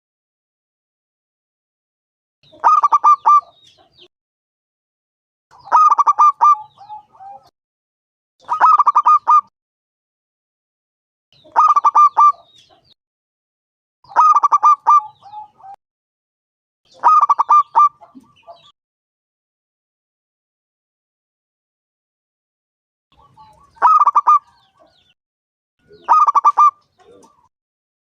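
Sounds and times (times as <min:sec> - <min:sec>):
dove cooing: 0:02.6 - 0:03.6, 0:05.6 - 0:07.5, 0:08.4 - 0:09.5, 0:11.5 - 0:12.5, 0:14.1 - 0:15.8, 0:17.0 - 0:18.4, 0:23.2 - 0:24.8, 0:25.9 - 0:27.5.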